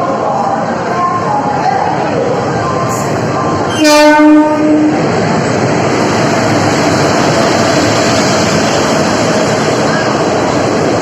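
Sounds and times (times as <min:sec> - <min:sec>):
train wheels rolling on rails: 0:00.0 - 0:11.0
locomotive horn blast: 0:03.7 - 0:05.0.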